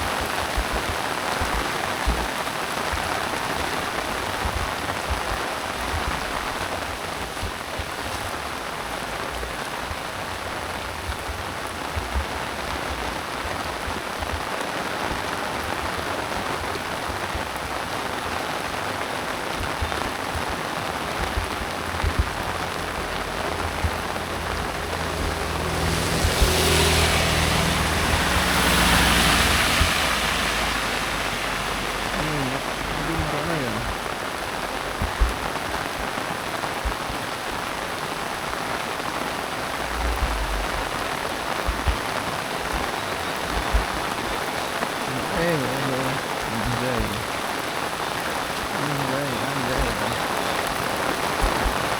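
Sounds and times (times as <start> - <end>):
drips and thumps: 0.0 - 51.9
heavy rain falling: 0.0 - 51.9
low rumble: 39.8 - 42.0.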